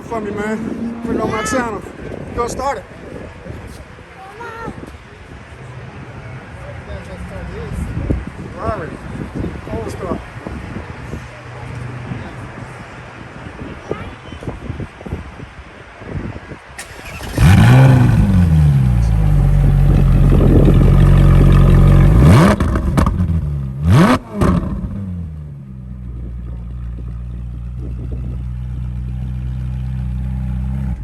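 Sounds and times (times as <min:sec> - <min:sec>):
engine throttle blips: 0:16.8 - 0:25.5
car engine starting and idling: 0:16.8 - 0:31.0.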